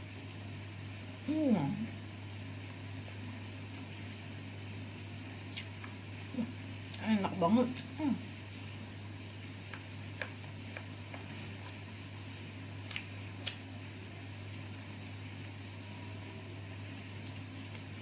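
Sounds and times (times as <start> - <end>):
steady low hum: 0.0 - 18.0
person chewing: 5.5 - 6.0, 9.7 - 11.9, 12.8 - 13.6
clicking mouth sounds: 12.9 - 13.6.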